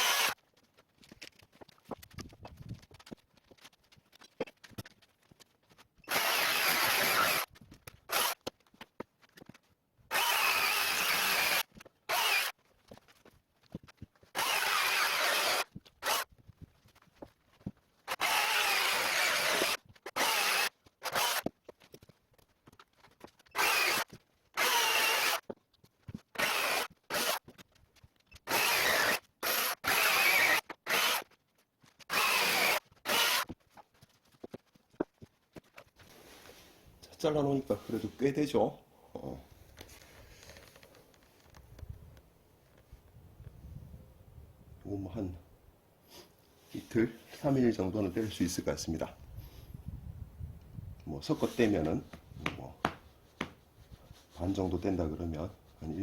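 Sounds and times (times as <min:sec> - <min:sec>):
electric chainsaw cutting logs: 0:00.0 - 0:00.4, 0:06.0 - 0:07.5, 0:08.1 - 0:08.6, 0:10.1 - 0:12.6, 0:14.3 - 0:16.3, 0:18.0 - 0:21.5, 0:23.4 - 0:27.6, 0:28.3 - 0:31.4, 0:32.0 - 0:33.6.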